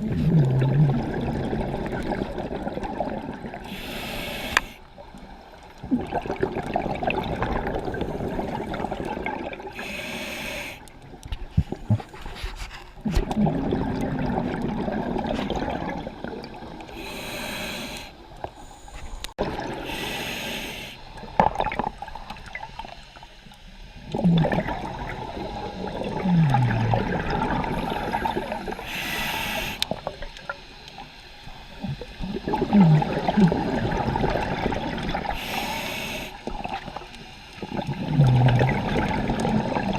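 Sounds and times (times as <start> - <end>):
gurgling exhaled bubbles: 0.0 - 4.4, 5.7 - 10.1, 13.0 - 17.6, 19.4 - 20.1, 21.4 - 22.9, 24.0 - 30.3, 31.8 - 39.9
regulator hissing inhales: 3.7 - 4.9, 9.8 - 10.9, 17.0 - 21.1, 27.8 - 30.0, 35.4 - 36.5.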